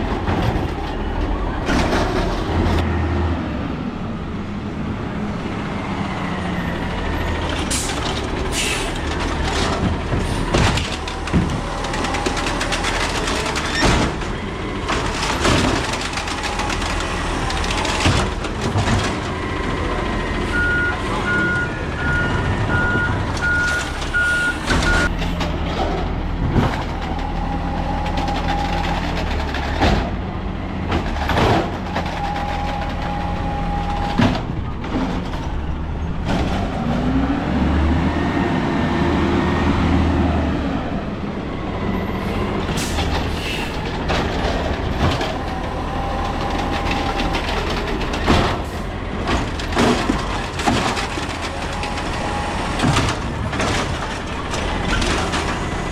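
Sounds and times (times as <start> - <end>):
loader arm and cart banging: 0.0 - 3.2, 5.8 - 55.9
reverse alarm beeps: 20.5 - 25.1.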